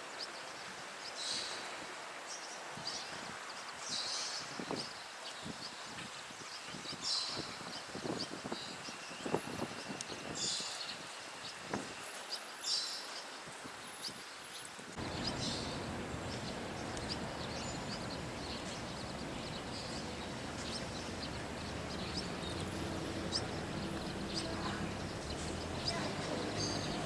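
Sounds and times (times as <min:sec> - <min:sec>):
rushing background noise: 0:14.9 - 0:27.0.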